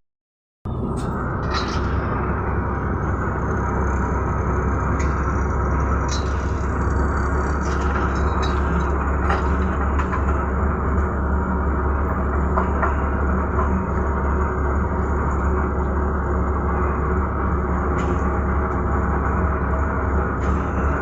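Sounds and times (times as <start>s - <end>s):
diesel engine rumbling: 0.7s - 21.0s
machine clicks and rattles: 4.9s - 11.2s.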